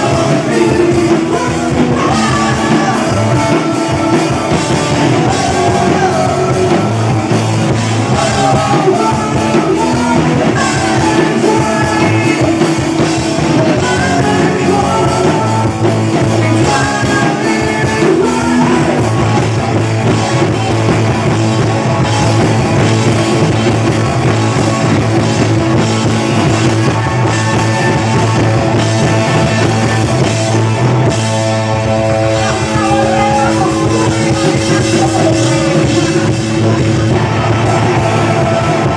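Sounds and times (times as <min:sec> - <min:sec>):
person singing: 0:00.0 - 0:21.3, 0:32.0 - 0:38.9
rock band playing: 0:00.0 - 0:38.9.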